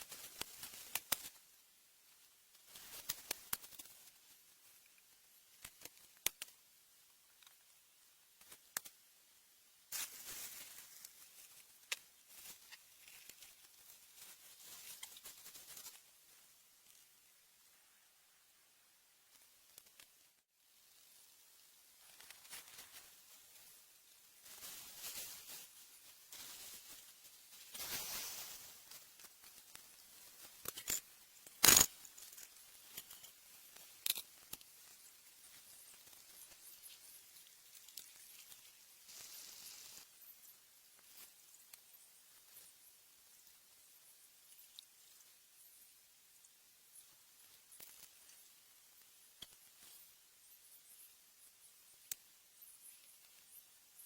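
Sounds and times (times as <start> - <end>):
faint rustling and pattering: 9.9 - 18.1, 19.2 - 54.0.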